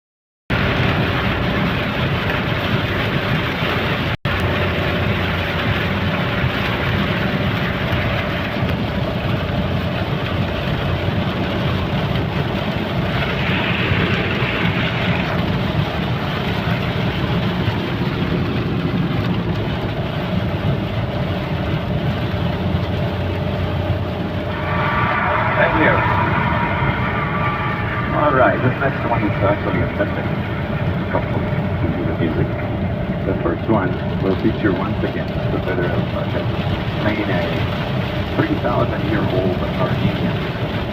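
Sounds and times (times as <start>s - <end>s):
heavy rain falling: 0.5s - 40.9s.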